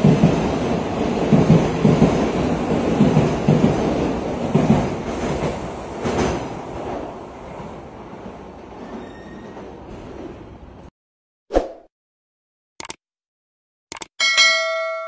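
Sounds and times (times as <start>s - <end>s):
bullet train passing: 0.0s - 10.9s.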